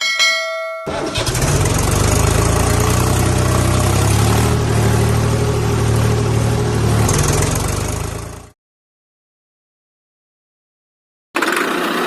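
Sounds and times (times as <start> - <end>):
engine idling: 0.9 - 8.5.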